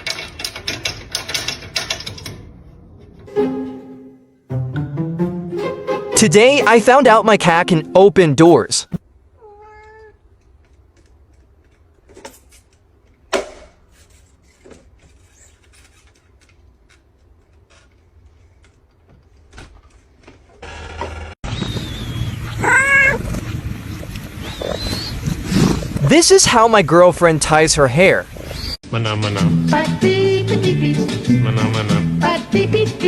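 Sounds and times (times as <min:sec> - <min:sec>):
background noise: 0:00.0 - 0:30.6
cat meowing: 0:09.4 - 0:10.2, 0:22.5 - 0:23.2.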